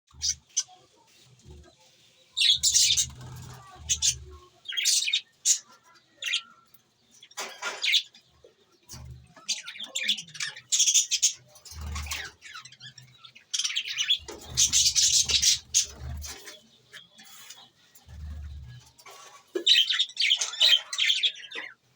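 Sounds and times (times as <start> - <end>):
budgerigars chirping: 2.4 - 6.5, 9.3 - 18.6.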